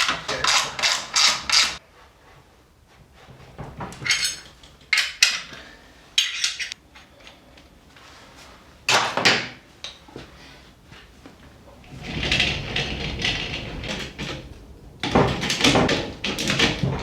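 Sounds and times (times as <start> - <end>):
scraping rattle: 0.0 - 1.8, 11.0 - 17.0.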